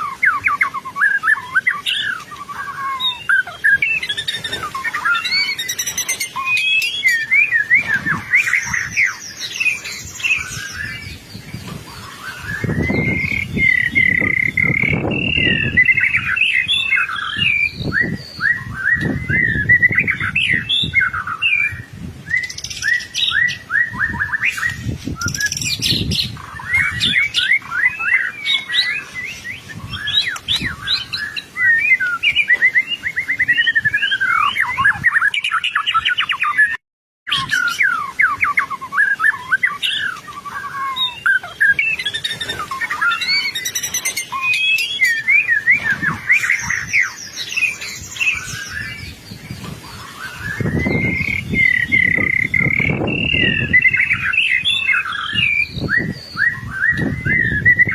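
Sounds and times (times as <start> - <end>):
bird singing whistled trills: 0.0 - 57.9.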